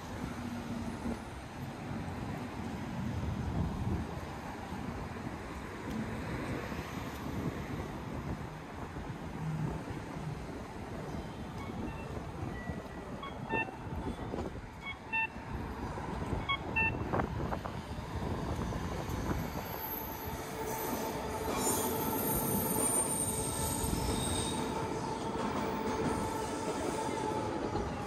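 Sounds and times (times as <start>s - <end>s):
train rumbling on rails: 0.0s - 28.0s
short beeps: 11.6s - 15.4s.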